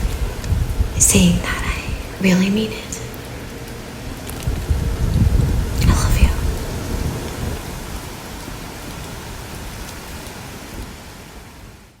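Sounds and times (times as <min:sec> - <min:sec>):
low rumble: 0:00.0 - 0:08.5
steady rain: 0:00.0 - 0:12.0.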